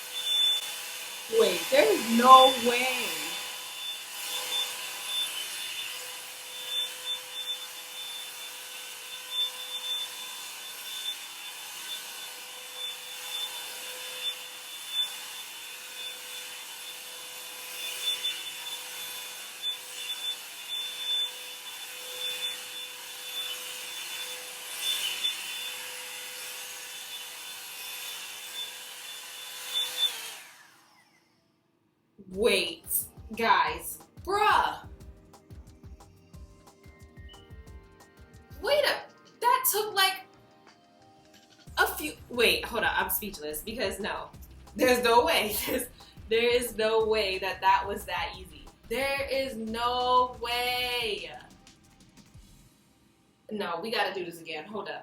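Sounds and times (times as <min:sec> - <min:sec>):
bristles rasping through hair: 0:00.0 - 0:08.3, 0:41.3 - 0:52.6
hair dryer fan hiss and whine: 0:00.0 - 0:31.5, 0:41.8 - 0:48.9.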